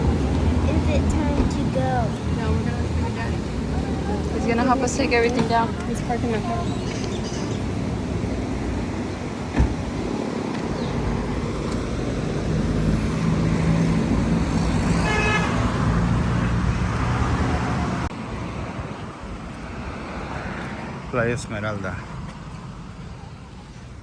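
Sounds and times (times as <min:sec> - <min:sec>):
vehicle engine running: 0:00.0 - 0:09.1.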